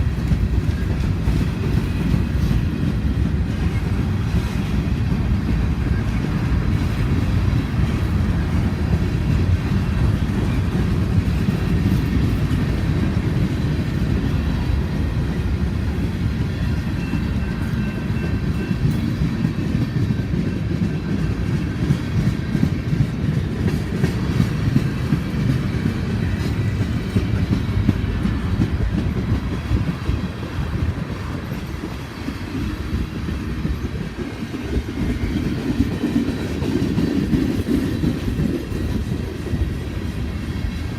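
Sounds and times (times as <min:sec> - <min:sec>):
freight train rumbling past: 0:00.0 - 0:40.9
wheels clacking over rail joints: 0:00.0 - 0:40.9.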